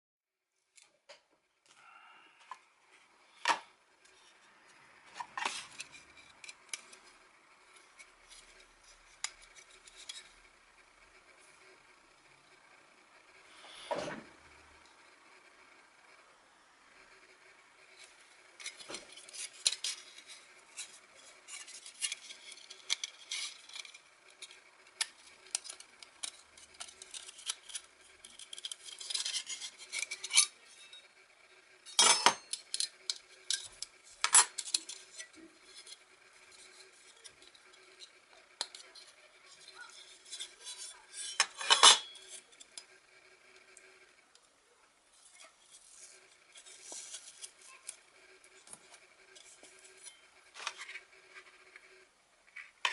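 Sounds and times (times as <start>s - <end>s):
metal plates clinking and scraping: 31.9s - 42.8s.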